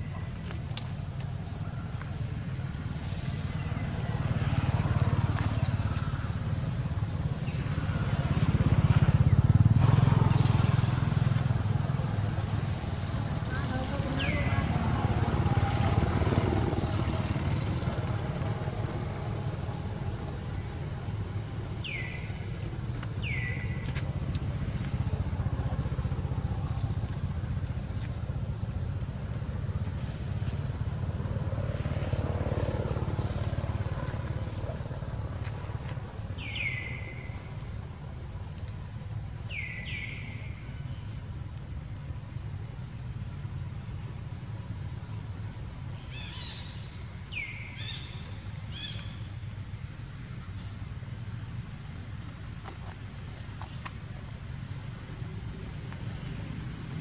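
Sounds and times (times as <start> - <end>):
bird chirping: 21.4 - 25.0, 36.4 - 37.6.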